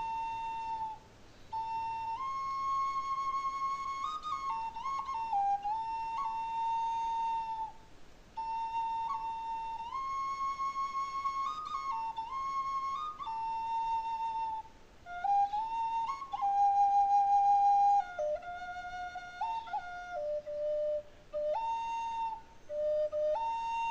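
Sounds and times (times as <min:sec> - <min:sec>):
flute playing slow melody: 0:00.0 - 0:23.9.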